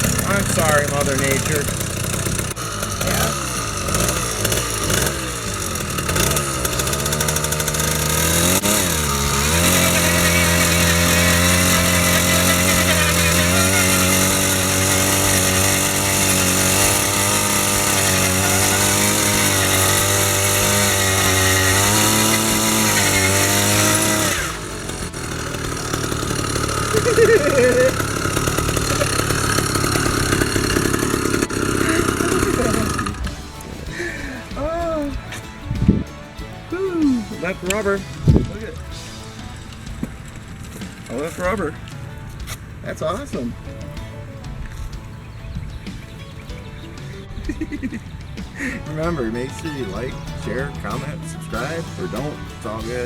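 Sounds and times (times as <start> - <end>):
two-stroke engine revving: 0.0 - 53.0.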